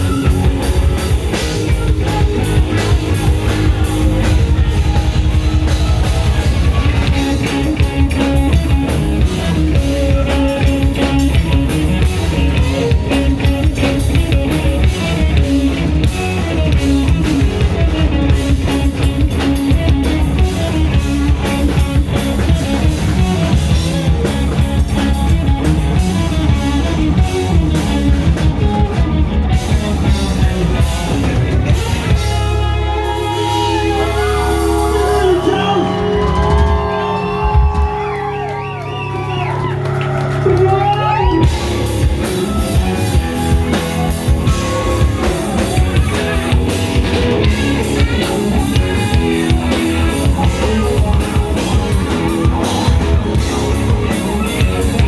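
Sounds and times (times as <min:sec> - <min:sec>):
bass: 0:00.0 - 0:55.0
drum kit: 0:00.0 - 0:55.0
guitar: 0:00.0 - 0:55.0.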